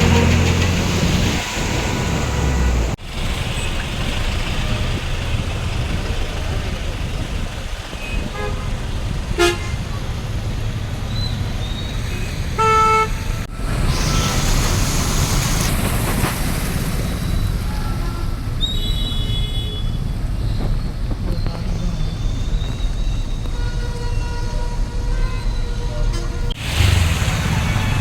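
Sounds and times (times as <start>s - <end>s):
vehicle horns honking: 0.0s - 0.8s, 8.0s - 10.0s, 12.1s - 14.4s, 22.6s - 27.0s
low rumble of engines: 0.0s - 28.0s
hiss: 14.0s - 17.1s.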